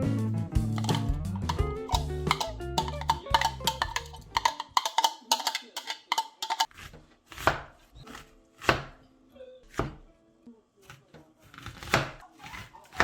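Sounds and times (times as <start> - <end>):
music with percussive beat: 0.5 - 4.5
knife chopping on cutting board: 0.8 - 9.0, 9.7 - 10.0, 10.9 - 13.0.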